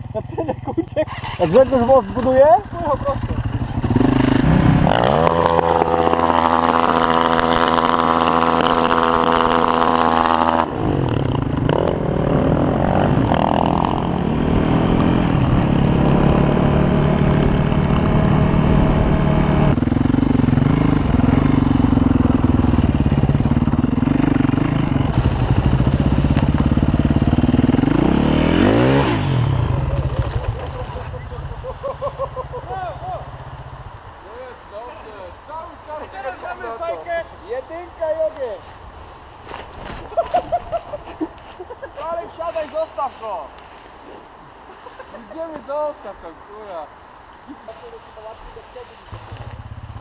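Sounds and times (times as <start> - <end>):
dirt bike engine revving: 0.0 - 33.6.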